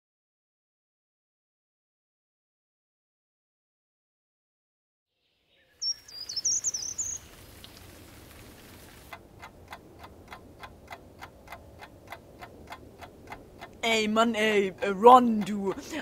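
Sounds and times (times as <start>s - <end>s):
bird twittering: 5.5s - 7.9s
steady ticking: 9.1s - 16.0s.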